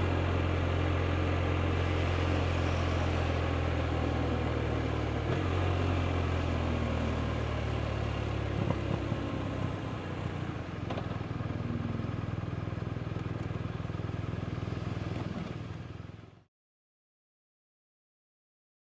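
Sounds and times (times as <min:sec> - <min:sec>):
motorcycle engine idling: 0:06.6 - 0:16.4.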